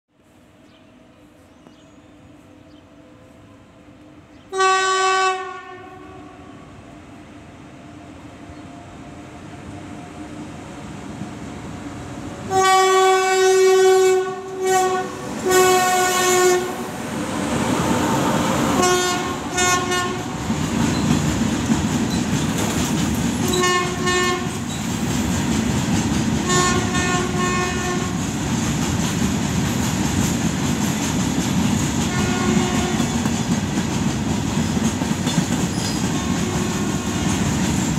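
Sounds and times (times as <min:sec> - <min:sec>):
locomotive horn blasts: 0:04.5 - 0:06.6, 0:12.5 - 0:16.8, 0:18.8 - 0:20.3, 0:23.4 - 0:24.6, 0:26.4 - 0:28.2, 0:32.1 - 0:33.2, 0:36.2 - 0:37.2
train wheels clattering on rails: 0:18.3 - 0:37.9.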